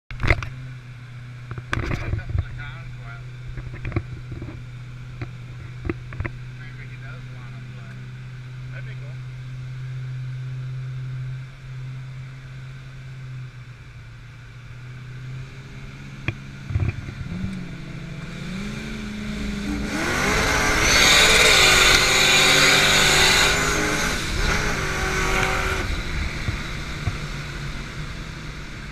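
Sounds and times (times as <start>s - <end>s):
race car engines idling: 0.2s - 28.9s
engines revving and accelerating: 14.7s - 28.9s.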